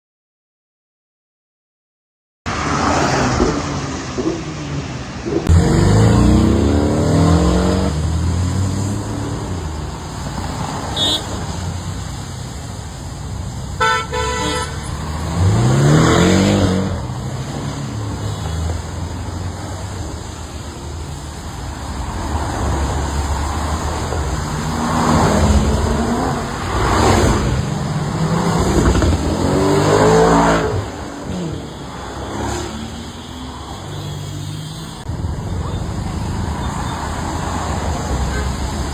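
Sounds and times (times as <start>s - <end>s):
car engines revving: 2.5s - 38.9s
car horn toots: 11.0s - 11.4s, 13.8s - 15.0s, 38.2s - 38.7s.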